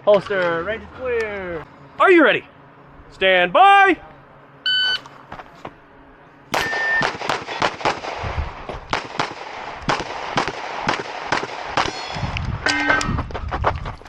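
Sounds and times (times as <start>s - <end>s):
pistol shots in quick pairs: 6.6s - 8.3s, 8.9s - 12.1s.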